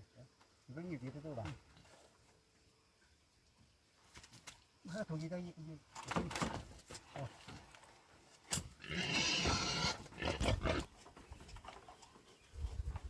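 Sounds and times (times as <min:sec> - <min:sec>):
pig squealing: 0:08.8 - 0:10.9.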